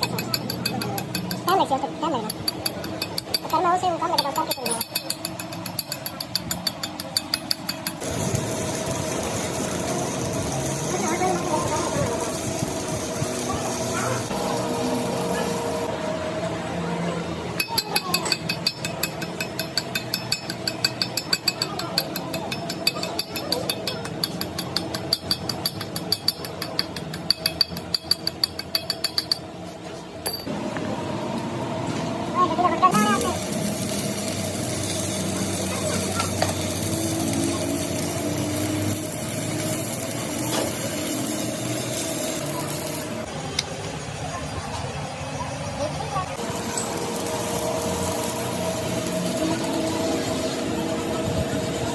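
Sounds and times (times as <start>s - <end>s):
rapid metallic clicking: 0.0s - 14.4s, 17.6s - 29.5s
workshop machinery running: 0.0s - 51.9s.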